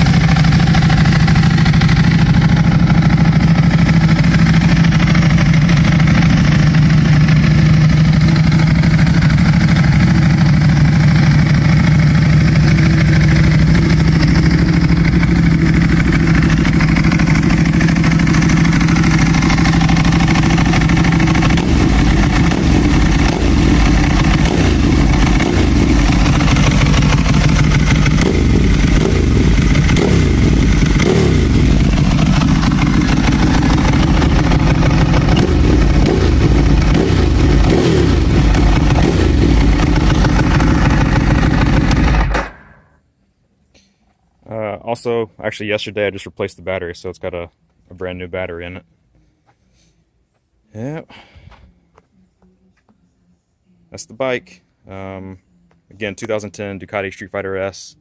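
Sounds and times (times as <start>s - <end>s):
motorcycle engine idling: 0.0s - 43.0s.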